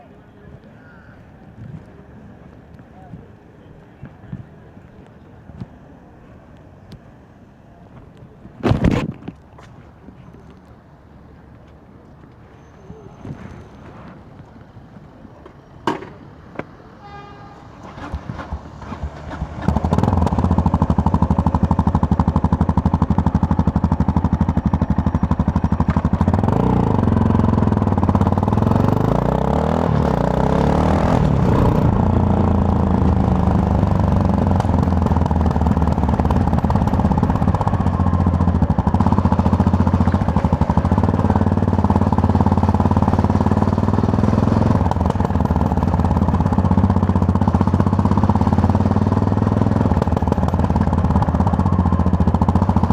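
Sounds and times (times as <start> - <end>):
motorcycle engine revving: 17.8 - 52.9.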